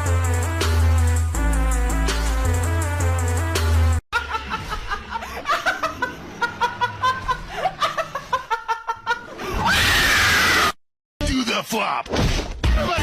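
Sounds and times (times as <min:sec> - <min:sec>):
music: 0:00.0 - 0:04.0, 0:11.2 - 0:13.0.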